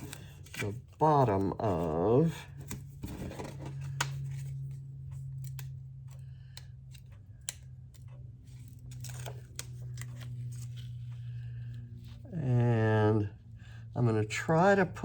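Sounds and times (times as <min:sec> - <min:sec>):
paper and foam rustling clicks: 0:00.0 - 0:05.8
steady low hum: 0:00.0 - 0:15.0.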